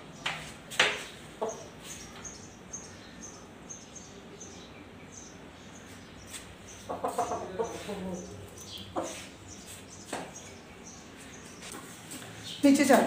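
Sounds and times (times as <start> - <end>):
small bird chirping: 1.4 - 13.0
rooster clucking: 6.8 - 9.4.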